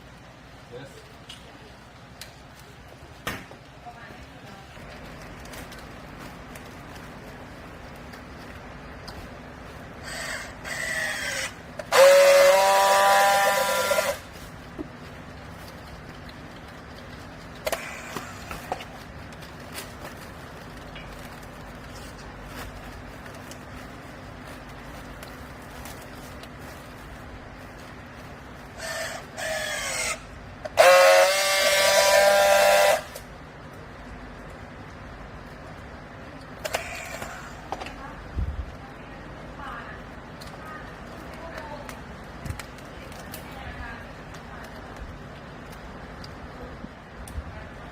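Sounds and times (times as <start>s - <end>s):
hydraulic machinery whining: 10.0s - 14.3s.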